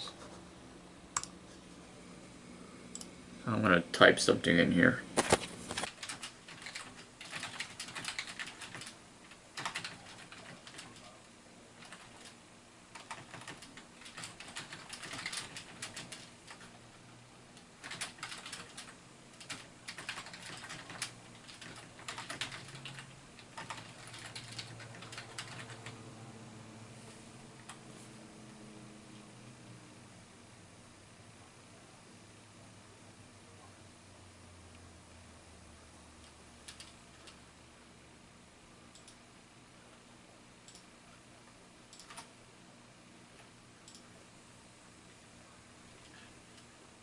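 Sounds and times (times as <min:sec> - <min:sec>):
low steady hum: 0:00.0 - 0:47.0
typing on a computer keyboard: 0:05.8 - 0:11.1, 0:11.8 - 0:16.8, 0:17.8 - 0:26.0, 0:36.2 - 0:37.4, 0:41.9 - 0:42.3.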